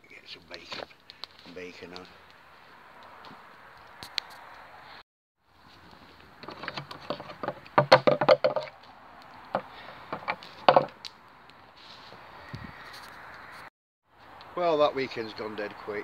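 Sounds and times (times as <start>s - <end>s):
sharp knocks and clatters: 6.4s - 8.8s, 9.5s - 11.0s.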